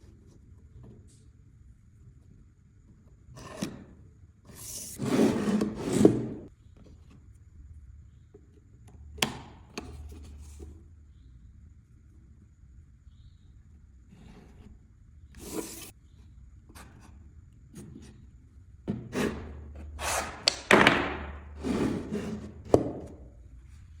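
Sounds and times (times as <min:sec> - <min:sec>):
scraping on workbench: 0:05.0 - 0:06.5, 0:18.9 - 0:23.2
knocks of wood and tools: 0:20.4 - 0:21.3.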